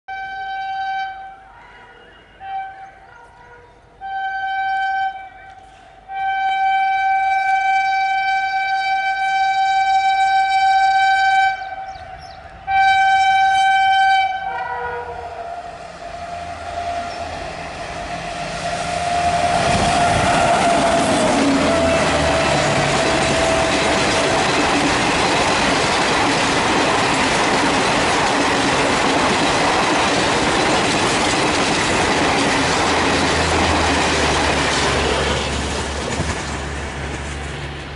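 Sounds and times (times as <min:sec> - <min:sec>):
locomotive horn blasts: 0:00.1 - 0:17.4, 0:18.6 - 0:24.5
train wheels rushing on rail: 0:14.4 - 0:37.9.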